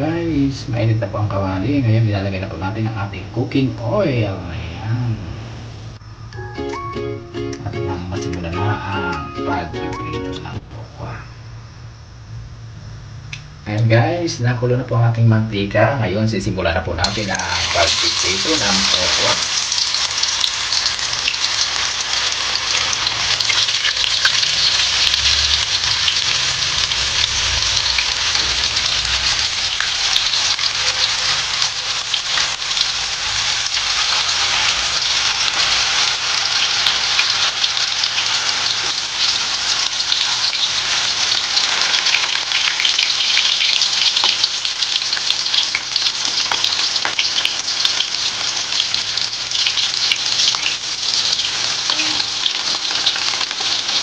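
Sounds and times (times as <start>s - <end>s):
tofu sizzling in oil: 17.0s - 54.0s.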